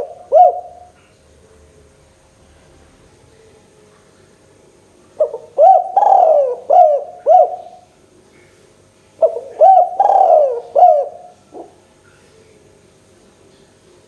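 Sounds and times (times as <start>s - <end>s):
dove cooing: 0.0s - 1.8s, 5.2s - 7.9s, 9.2s - 12.8s.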